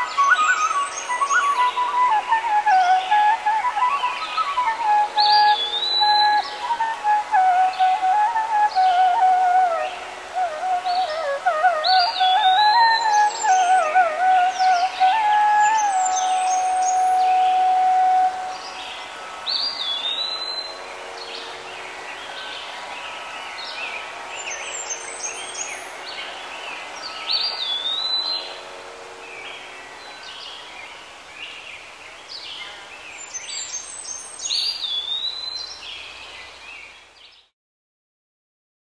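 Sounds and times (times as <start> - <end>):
rising and falling whistled call: 0.0 - 20.8
steady background hiss: 0.0 - 37.5.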